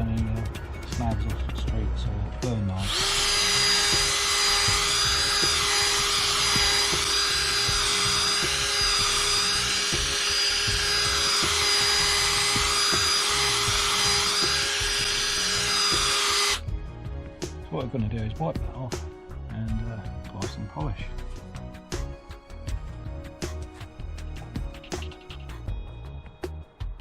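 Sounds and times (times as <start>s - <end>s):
electric drill with polishing pad: 2.8s - 16.6s.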